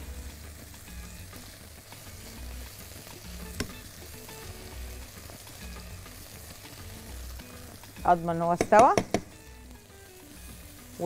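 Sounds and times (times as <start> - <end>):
sausage sizzling in a frying pan: 0.0 - 11.0
spatula stirring in pan: 0.6 - 11.0
sharp tap: 8.6 - 9.3.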